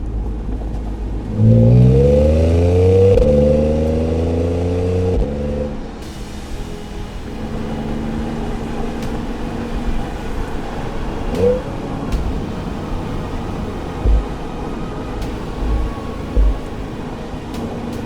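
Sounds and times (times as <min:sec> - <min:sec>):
car engine at light throttle: 0:00.0 - 0:06.0, 0:07.2 - 0:18.0
road and tyre rumble: 0:00.0 - 0:18.0
faint steady tone: 0:05.6 - 0:18.0.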